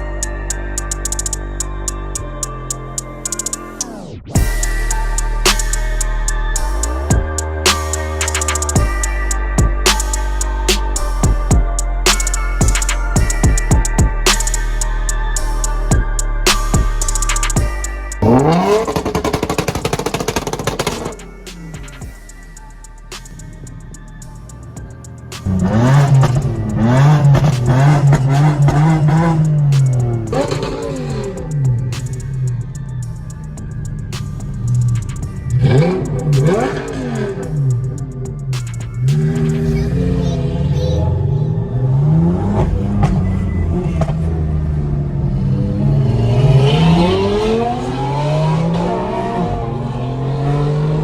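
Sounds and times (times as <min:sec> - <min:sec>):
background music: 0:00.0 - 0:51.0
car engine revving: 0:16.4 - 0:51.0
sharp exhaust pops: 0:18.2 - 0:22.1.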